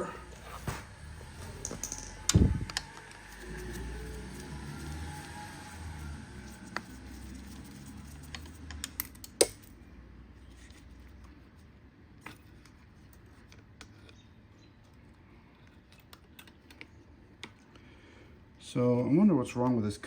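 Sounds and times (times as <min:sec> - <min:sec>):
clicks and taps of small parts: 0:08.3 - 0:09.7.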